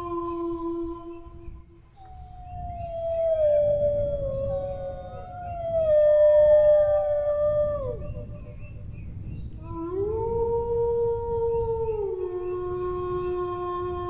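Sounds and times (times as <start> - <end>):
dogs howling: 2.0 - 8.7.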